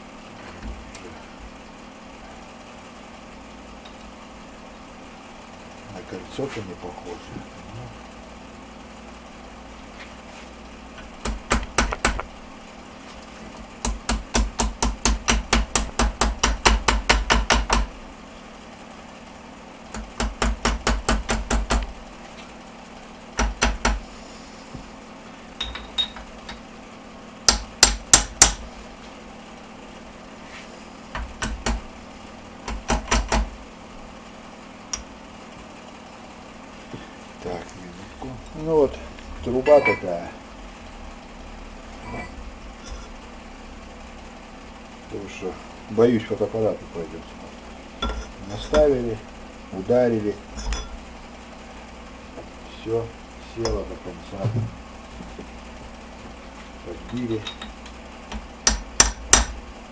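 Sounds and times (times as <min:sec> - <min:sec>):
hammer tapping on metal: 0:11.2 - 0:12.3, 0:13.8 - 0:17.9, 0:20.2 - 0:21.9, 0:58.3 - 0:59.5.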